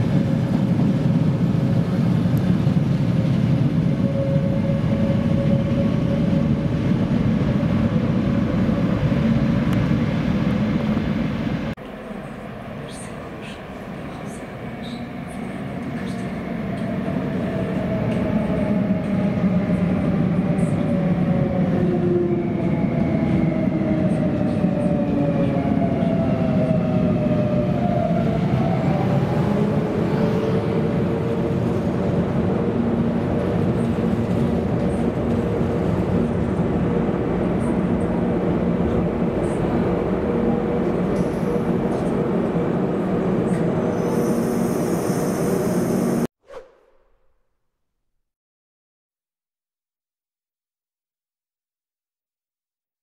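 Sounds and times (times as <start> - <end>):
train rumbling and echoing: 0.0 - 47.2.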